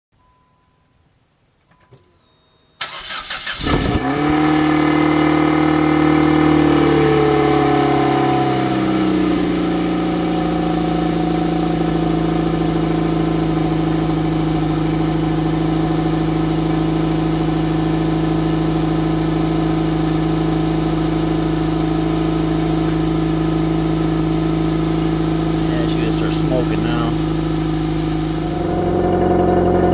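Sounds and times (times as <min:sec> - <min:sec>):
car starter cranking: 0:01.6 - 0:04.2
car engine idling: 0:02.0 - 0:29.9.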